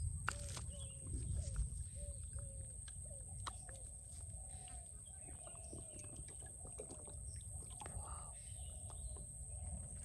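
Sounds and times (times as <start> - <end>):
steady low rumble: 0.0 - 4.7.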